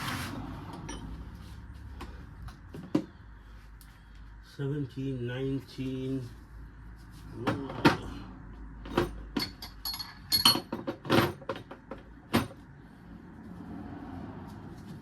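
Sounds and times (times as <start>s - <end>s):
metal sockets clinking: 8.9s - 11.7s.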